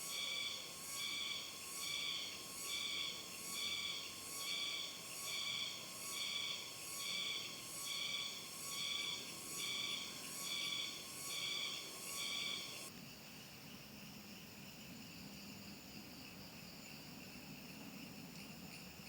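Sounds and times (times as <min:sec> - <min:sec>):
insect pulsing call: 0:00.0 - 0:12.9
insect chorus: 0:00.0 - 0:19.0
steady thin insect tone: 0:00.0 - 0:19.0.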